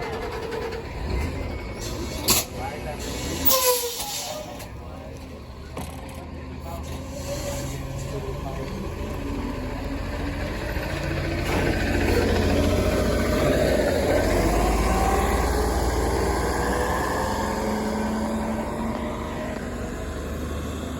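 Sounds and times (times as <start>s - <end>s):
bus driving past: 0.0s - 20.9s.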